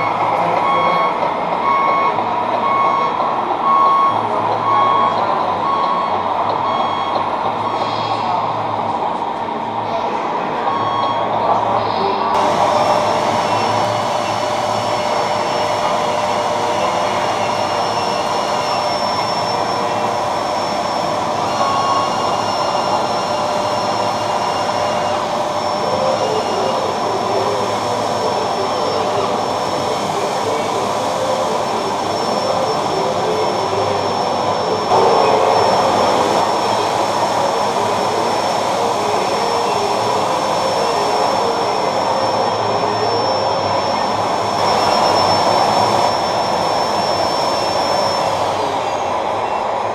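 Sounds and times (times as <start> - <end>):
rc trucks driving whine: 0.0 - 49.9.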